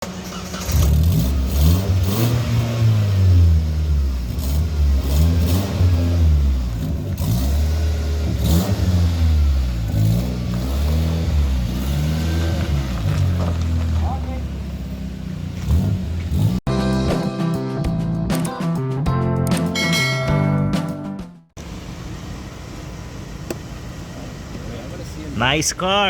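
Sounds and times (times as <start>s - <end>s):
sports car engine revving: 0.1s - 16.7s.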